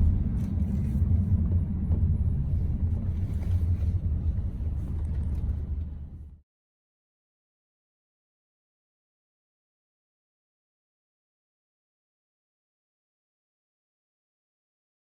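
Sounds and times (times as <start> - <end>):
moving vehicle rumble: 0.0 - 6.4.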